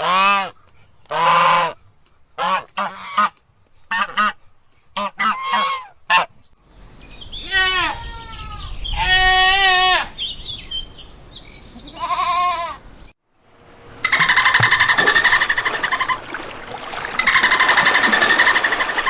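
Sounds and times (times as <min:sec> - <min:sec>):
goose honking: 0:05.0 - 0:06.3, 0:14.0 - 0:19.0
goat bleating: 0:11.8 - 0:12.8, 0:14.0 - 0:16.2.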